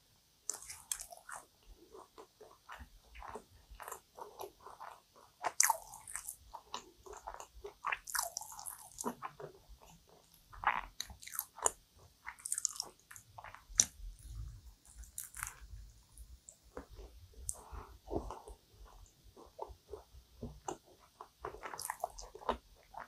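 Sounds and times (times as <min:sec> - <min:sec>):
mouth clicks and smacks: 0:00.5 - 0:15.7, 0:16.5 - 0:23.0
crisp pastry crunches: 0:10.6 - 0:14.0.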